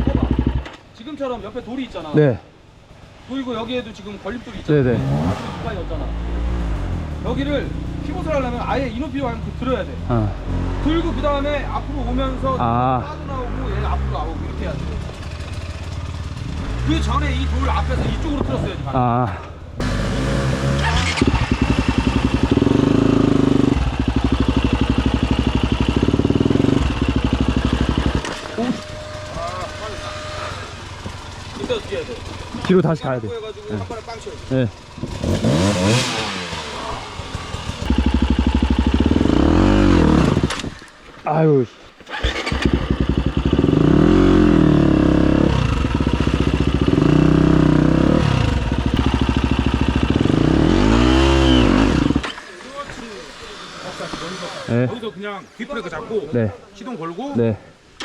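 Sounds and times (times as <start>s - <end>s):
dirt bike engine idling: 0.0s - 5.0s, 5.7s - 40.6s, 42.0s - 55.0s.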